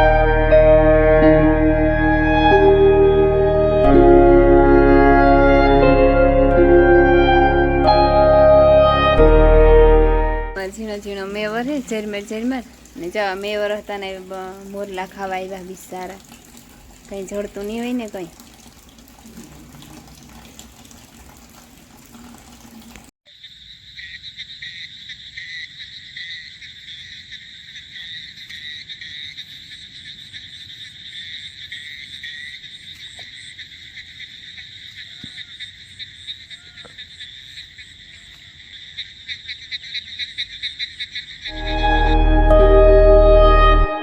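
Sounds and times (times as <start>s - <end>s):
frogs and insects calling: 23.3s - 41.6s.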